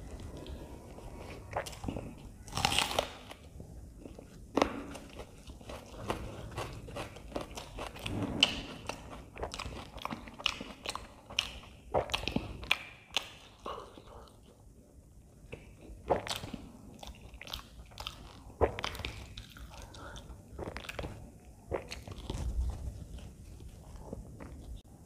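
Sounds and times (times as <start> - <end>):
chewing with mouth clicks: 0.0 - 14.8, 15.4 - 24.9
crunchy bite: 1.4 - 3.5, 4.1 - 14.0, 15.6 - 23.0.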